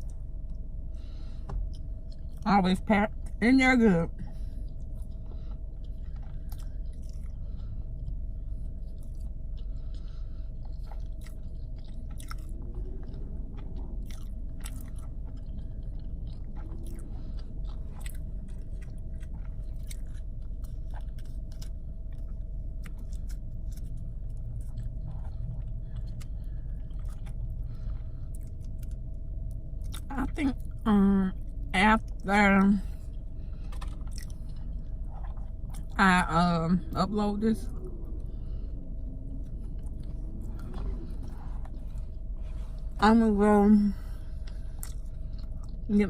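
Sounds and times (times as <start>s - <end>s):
person chewing food: 0.0s - 2.4s, 4.3s - 30.8s, 32.8s - 36.0s, 37.7s - 43.0s, 44.0s - 45.9s
steady low hum: 0.0s - 46.0s
wet mouth clicks and crunches: 10.6s - 27.6s, 33.6s - 36.0s.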